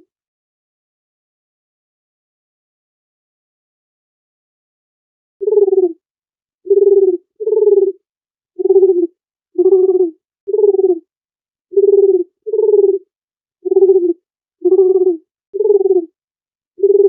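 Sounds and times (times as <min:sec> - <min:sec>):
dove cooing: 0:05.4 - 0:06.0, 0:06.7 - 0:08.0, 0:08.6 - 0:11.0, 0:11.7 - 0:16.2, 0:16.8 - 0:17.0.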